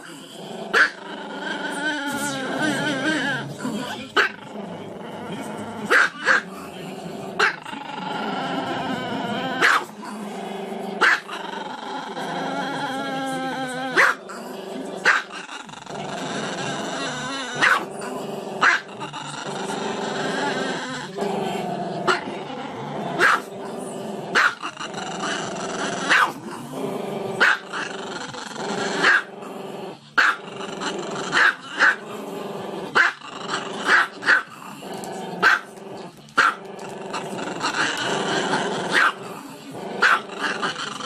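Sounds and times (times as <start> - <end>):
dog growling: 0.0 - 41.0
dog barking: 0.8 - 1.0, 5.9 - 6.4, 9.6 - 9.9, 11.0 - 11.3, 14.0 - 14.2, 15.0 - 15.4, 17.6 - 17.9, 23.2 - 23.5, 24.4 - 24.6, 26.1 - 26.4, 27.4 - 27.6, 29.0 - 29.3, 30.2 - 30.4, 31.4 - 32.0, 33.9 - 34.5, 35.4 - 35.7, 38.9 - 39.2, 40.0 - 40.2.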